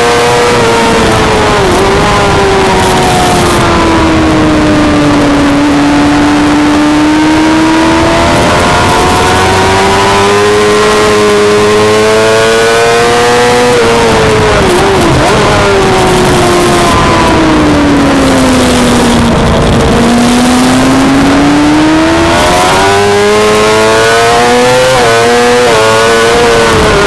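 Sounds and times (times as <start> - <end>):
motorcycle engine revving: 0.0 - 27.0
wind and road noise: 0.0 - 27.0.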